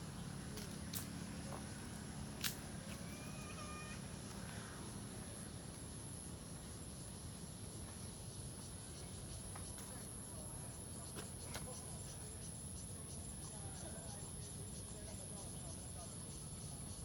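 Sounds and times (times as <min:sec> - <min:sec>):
low outdoor rumble: 0:00.0 - 0:11.1
insects chirping: 0:00.0 - 0:17.0.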